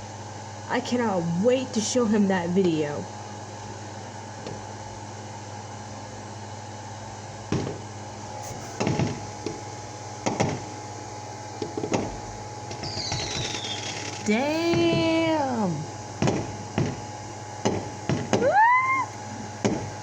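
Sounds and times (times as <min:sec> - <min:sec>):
electrical hum: 0:00.0 - 0:20.0
fireworks popping: 0:08.4 - 0:10.7, 0:11.6 - 0:15.4, 0:16.2 - 0:18.6.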